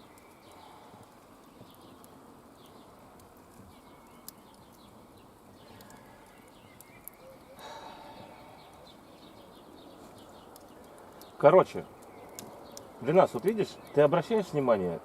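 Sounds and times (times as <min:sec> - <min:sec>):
small birds chirping: 0:00.0 - 0:15.0
sharp clicks: 0:10.4 - 0:14.0.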